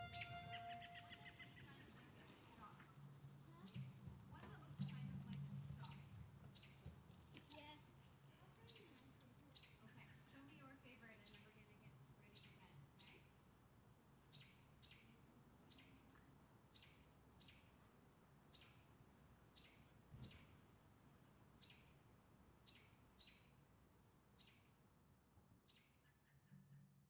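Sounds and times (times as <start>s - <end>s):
bird chip notes: 0.0s - 1.5s.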